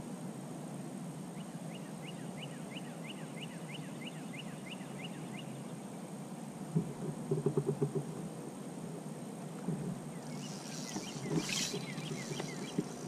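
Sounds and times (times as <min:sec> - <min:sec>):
bird whistling short rising notes: 0:10.2 - 0:13.0.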